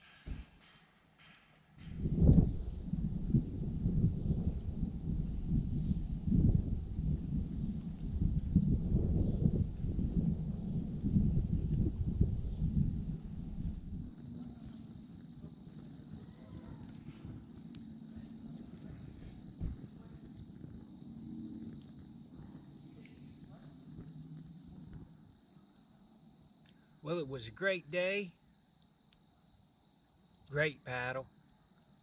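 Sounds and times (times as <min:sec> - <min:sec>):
night insects chorus: 0:00.0 - 0:32.0
low rumbling noise: 0:01.8 - 0:25.3
soft thump: 0:19.5 - 0:20.1.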